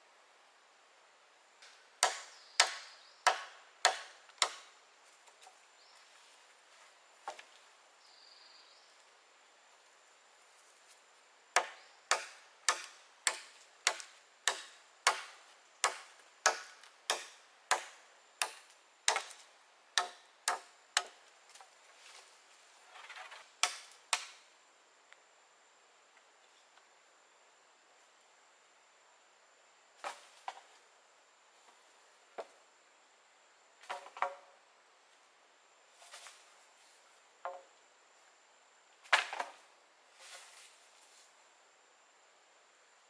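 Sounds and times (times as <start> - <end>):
blade chopping wood: 2.0 - 4.7, 11.6 - 19.4, 23.6 - 24.4.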